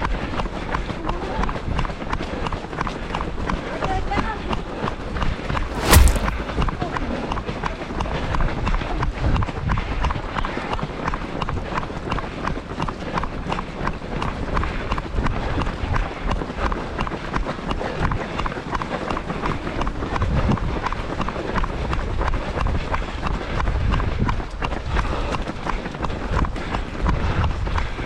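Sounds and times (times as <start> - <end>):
footsteps on pavement: 5.7 - 6.5.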